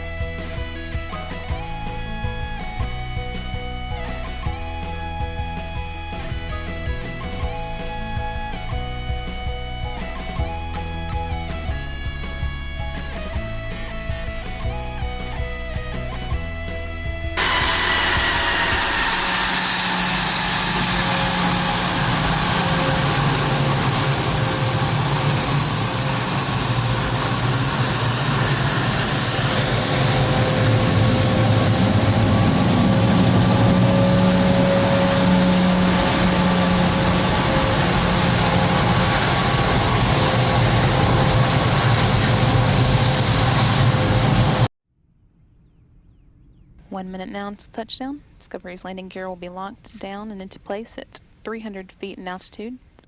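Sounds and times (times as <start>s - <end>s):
airplane engines roaring: 17.4s - 44.7s.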